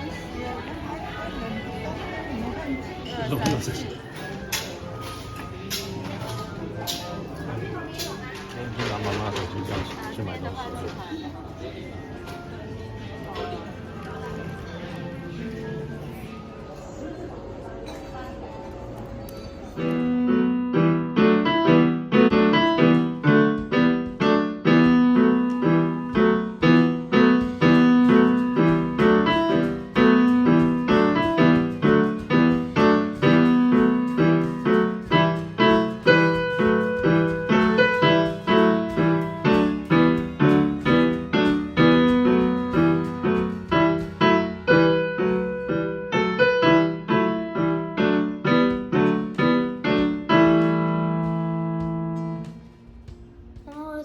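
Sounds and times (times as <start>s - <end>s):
solo piano: 19.8s - 52.5s.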